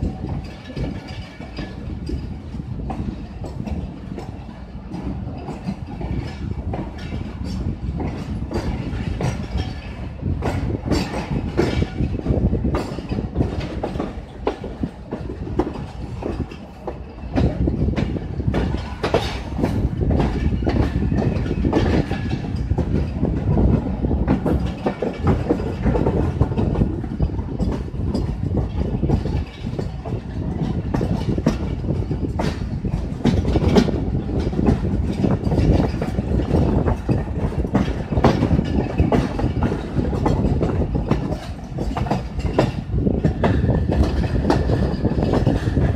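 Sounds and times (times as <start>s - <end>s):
train wheels rumbling: 0.0s - 45.9s
wheels clacking over rail joints: 0.0s - 45.9s.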